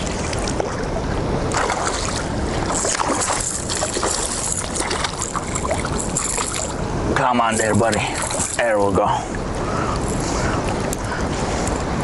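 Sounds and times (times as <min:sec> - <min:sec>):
wind on microphone: 0:00.0 - 0:07.2
river water rushing: 0:00.0 - 0:12.0.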